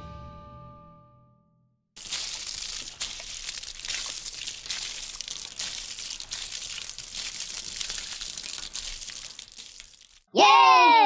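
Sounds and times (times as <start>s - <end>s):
crackling rustling noise: 2.0s - 10.3s.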